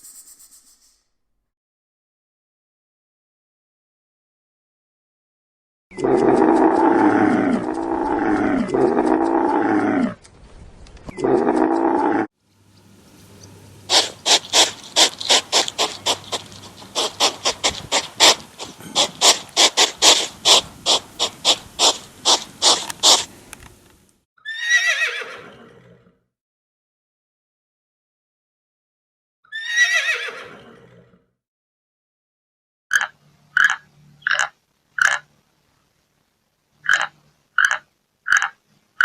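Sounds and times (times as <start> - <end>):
wavering animal call: 6.0 - 10.2, 13.9 - 23.3.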